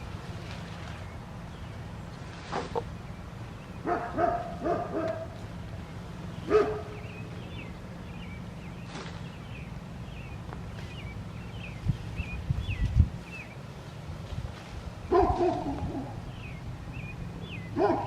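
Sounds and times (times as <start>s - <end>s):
dog barking: 3.8s - 5.3s, 6.5s - 7.0s, 15.1s - 16.2s, 17.8s - 18.0s.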